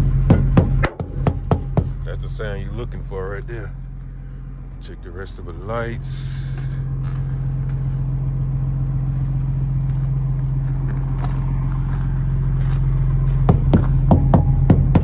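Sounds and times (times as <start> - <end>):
diesel truck engine idling: 0.0 - 15.0
sharp knocks: 0.3 - 2.0, 13.5 - 15.0.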